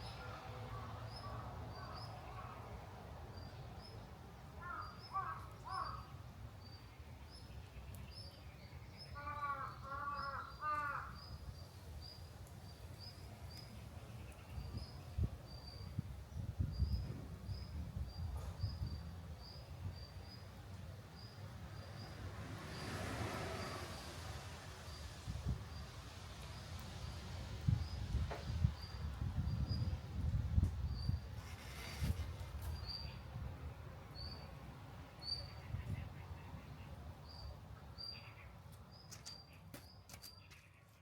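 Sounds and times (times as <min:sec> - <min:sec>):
crow cawing: 0:04.6 - 0:06.1, 0:09.2 - 0:11.2.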